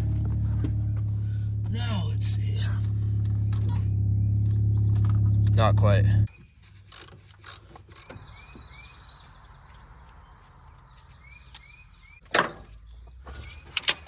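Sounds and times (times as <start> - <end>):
hand tools clicking on metal: 6.8 - 8.2
ratchet clicking: 6.8 - 8.2.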